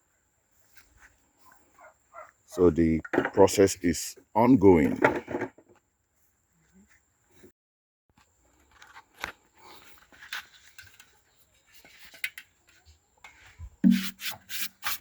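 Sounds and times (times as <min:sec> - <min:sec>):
scraping inside wooden box: 0:13.8 - 0:15.0.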